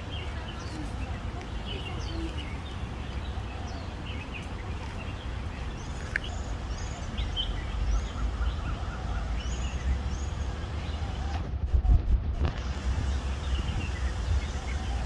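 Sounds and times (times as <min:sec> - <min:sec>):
small birds chirping: 0:00.0 - 0:11.5, 0:12.4 - 0:15.0
steady low rumble: 0:05.4 - 0:15.0.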